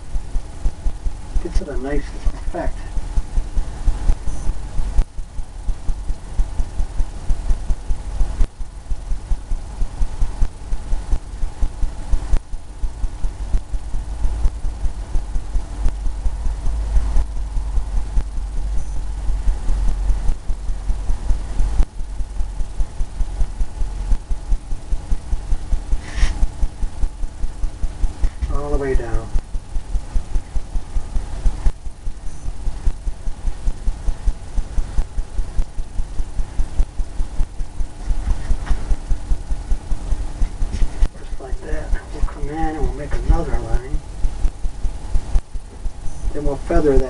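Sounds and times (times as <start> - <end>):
paintbrush dabbing on canvas: 26.0 - 26.5.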